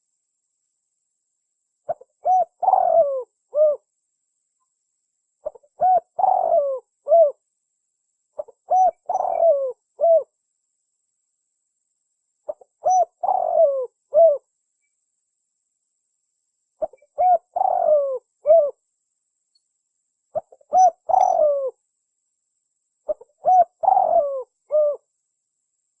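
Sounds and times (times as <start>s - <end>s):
dove cooing: 1.9s - 3.8s, 5.4s - 7.4s, 8.4s - 10.3s, 12.5s - 14.4s, 16.8s - 18.8s, 20.4s - 21.8s, 23.1s - 25.1s.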